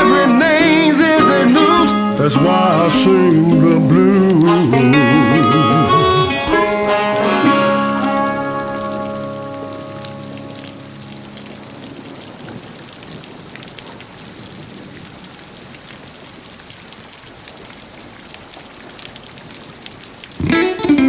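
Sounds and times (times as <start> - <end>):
guitar music: 0.0 - 12.0, 20.4 - 21.0
steady rain: 0.0 - 21.0.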